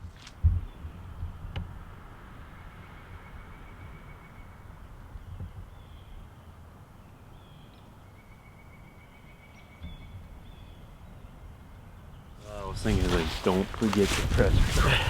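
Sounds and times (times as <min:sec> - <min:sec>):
wind rumbling on microphone: 0:00.0 - 0:06.5, 0:12.4 - 0:15.0.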